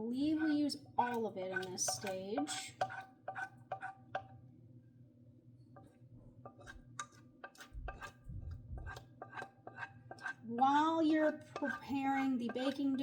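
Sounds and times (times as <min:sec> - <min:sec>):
metal spoon scraping a pan: 0:00.2 - 0:04.3, 0:05.8 - 0:13.0.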